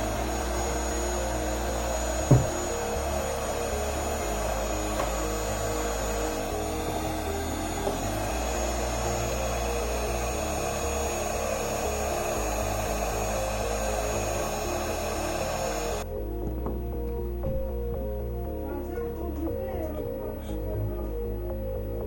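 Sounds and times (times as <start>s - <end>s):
heat gun blowing: 0.0s - 16.0s.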